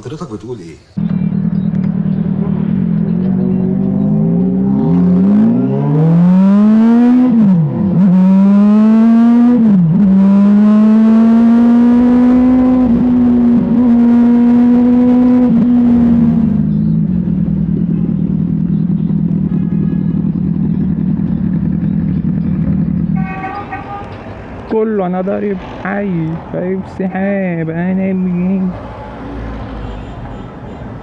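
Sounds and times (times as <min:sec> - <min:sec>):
motorcycle engine accelerating: 0:01.0 - 0:24.7.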